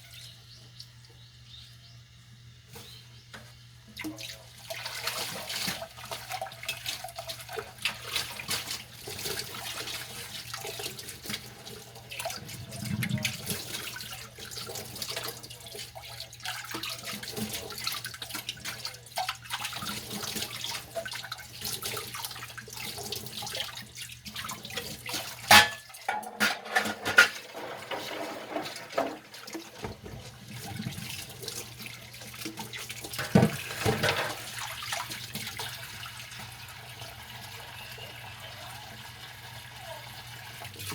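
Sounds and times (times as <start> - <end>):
running tap water: 3.8 - 40.9
dishes scrubbing and clattering: 4.8 - 22.1, 24.3 - 35.7
sharp knocks of dishware: 25.5 - 26.6.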